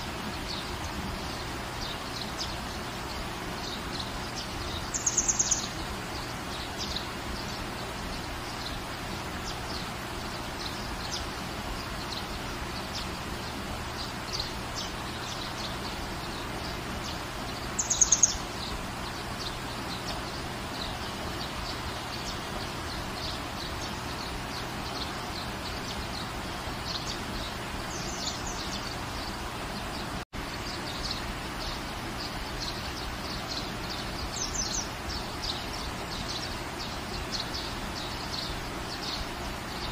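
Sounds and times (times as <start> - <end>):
small birds chirping: 0.0 - 39.9
steady rain hiss: 0.0 - 39.9.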